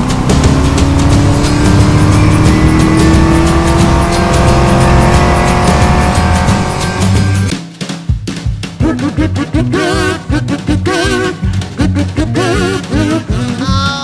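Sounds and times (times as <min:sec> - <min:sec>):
car engine accelerating: 0:00.0 - 0:07.5
music with steady beat: 0:00.0 - 0:14.0.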